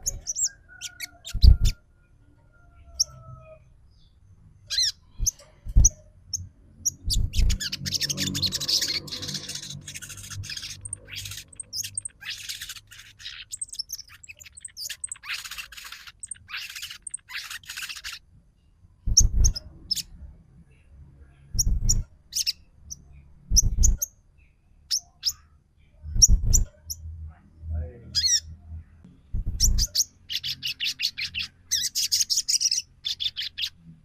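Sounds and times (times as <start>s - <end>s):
rapid raspy bird chattering: 0.0s - 1.8s, 4.7s - 6.0s, 6.8s - 18.2s, 28.2s - 28.5s, 29.4s - 33.8s.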